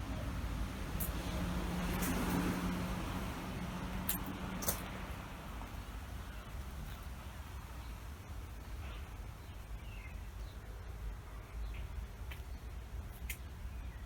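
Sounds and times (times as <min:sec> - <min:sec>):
car passing: 0:00.0 - 0:06.7.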